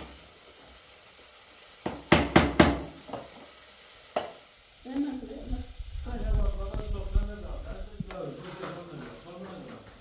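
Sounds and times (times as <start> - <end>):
utensil scraping cooking pot: 8.2 - 10.0.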